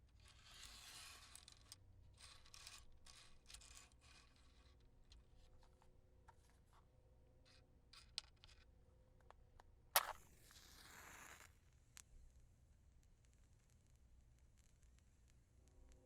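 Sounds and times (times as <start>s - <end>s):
match striking and hissing: 10.0s - 11.6s.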